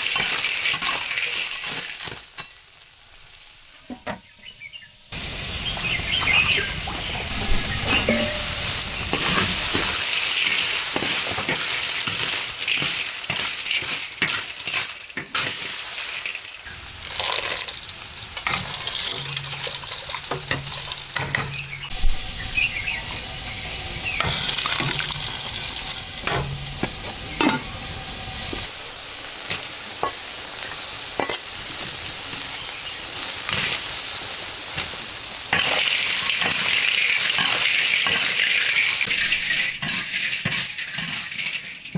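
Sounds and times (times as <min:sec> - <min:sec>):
food sizzling in a wok: 0:00.0 - 0:41.9
metal spatula scraping a pan: 0:07.3 - 0:16.3, 0:17.1 - 0:21.8, 0:24.2 - 0:27.7, 0:35.5 - 0:41.9.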